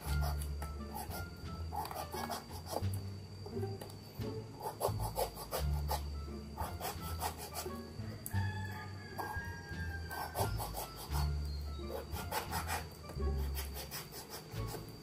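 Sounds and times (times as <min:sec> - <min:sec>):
knife scraping fruit rind: 0:00.0 - 0:03.0, 0:04.6 - 0:07.8, 0:10.1 - 0:15.0.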